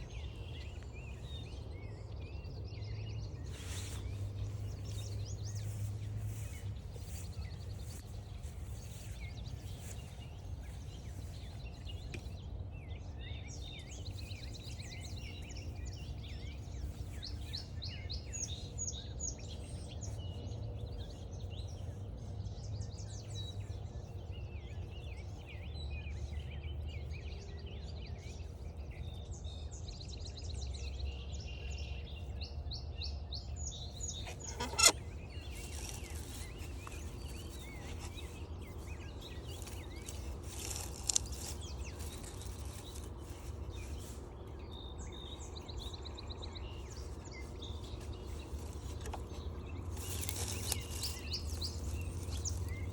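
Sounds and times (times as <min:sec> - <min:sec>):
songbirds singing: 0:00.0 - 0:52.9
sharp click: 0:34.3 - 0:35.0.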